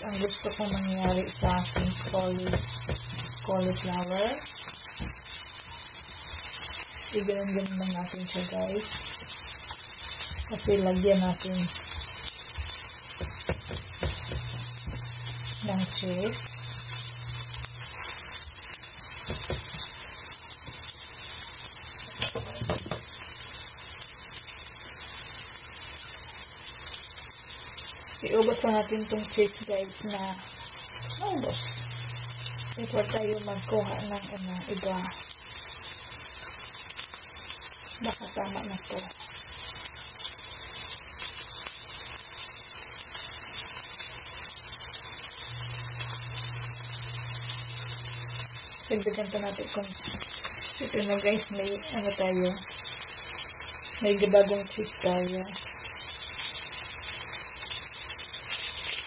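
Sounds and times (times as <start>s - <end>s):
low steady hum: 0.0s - 4.2s, 13.6s - 18.0s, 30.0s - 34.8s, 45.5s - 50.1s
cauliflower sizzling in a pan: 0.0s - 59.0s.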